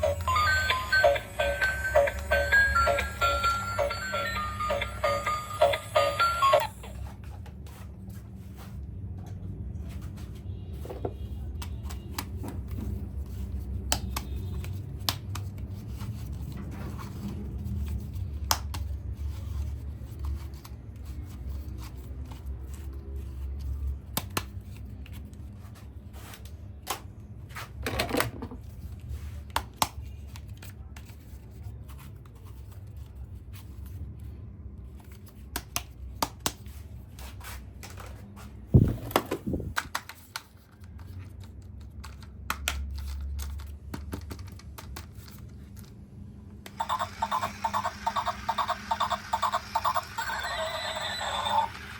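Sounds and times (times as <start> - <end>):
plastic toys being handled: 0.0 - 46.1.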